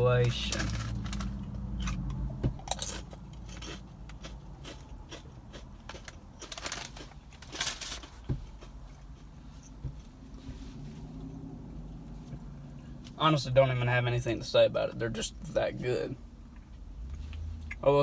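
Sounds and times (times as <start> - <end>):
potato chips being chewed: 0.2 - 9.7.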